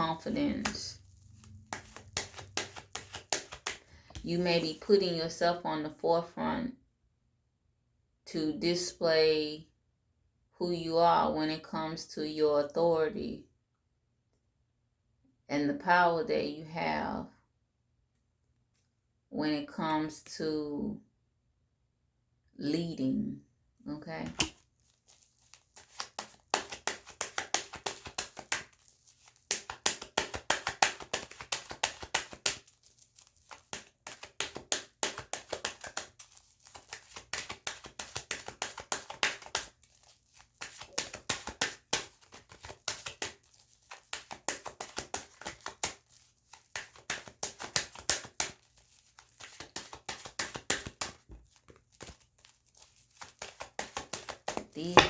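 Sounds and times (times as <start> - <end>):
cards being shuffled by hand: 0.2 - 4.8, 24.2 - 55.0.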